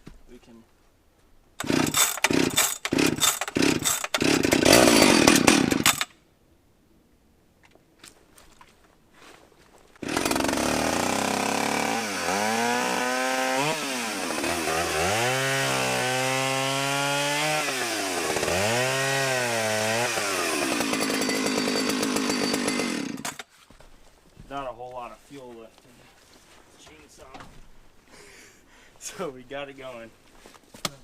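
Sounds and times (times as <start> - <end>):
chainsaw revving: 1.6 - 6.1, 10.0 - 23.4.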